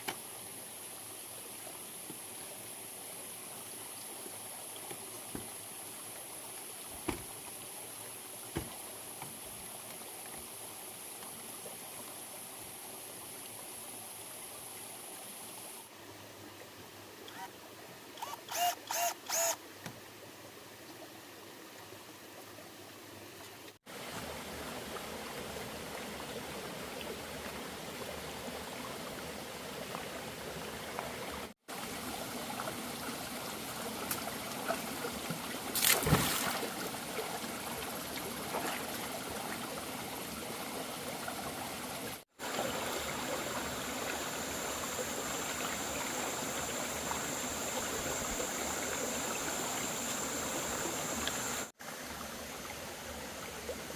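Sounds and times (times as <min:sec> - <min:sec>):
flowing stream rushing: 0:23.9 - 0:53.9.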